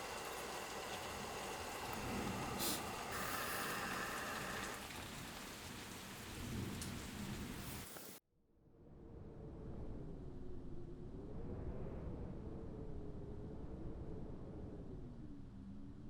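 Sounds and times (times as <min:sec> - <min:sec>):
steady rain falling: 0:00.0 - 0:08.2.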